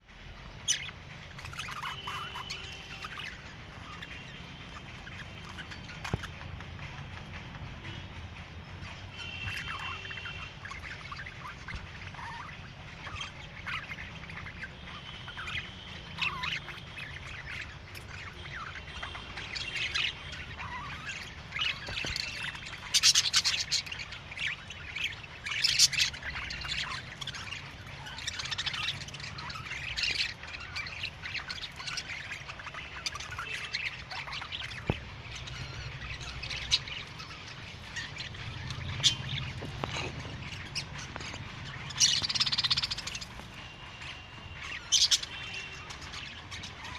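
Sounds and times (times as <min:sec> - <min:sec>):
budgerigars chirping: 0:00.4 - 0:08.2, 0:08.8 - 0:46.9.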